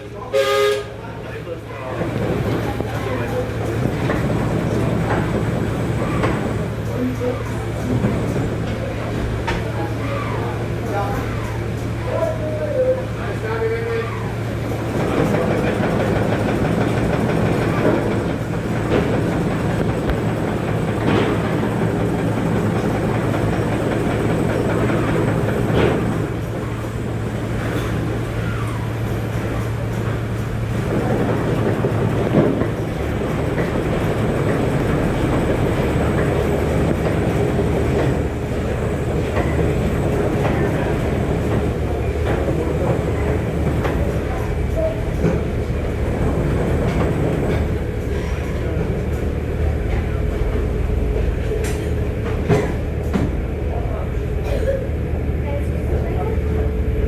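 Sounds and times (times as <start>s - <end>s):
steam engine running: 14.3s - 54.4s.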